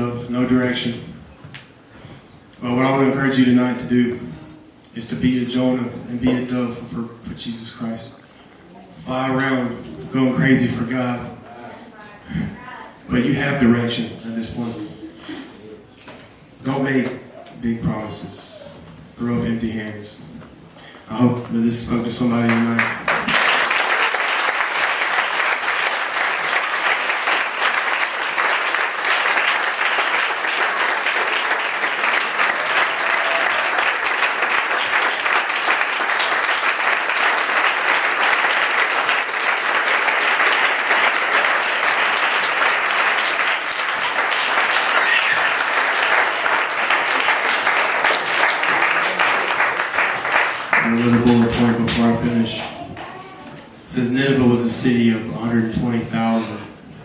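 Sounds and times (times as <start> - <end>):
crowd applauding: 22.4 - 53.2.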